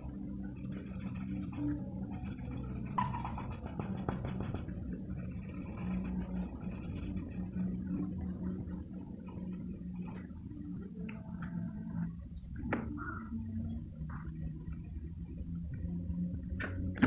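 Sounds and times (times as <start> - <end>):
low electrical hum: 0.0 - 17.0
pencil scratching on paper: 0.5 - 10.3, 14.2 - 15.4.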